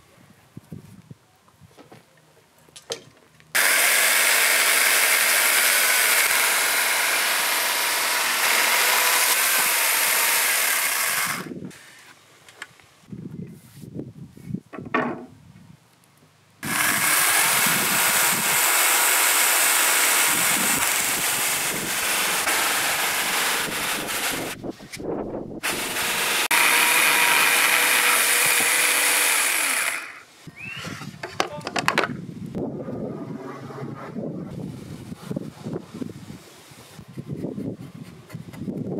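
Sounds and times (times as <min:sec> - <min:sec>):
electric chainsaw cutting wood: 0:03.6 - 0:11.8, 0:16.6 - 0:24.6, 0:25.6 - 0:30.3.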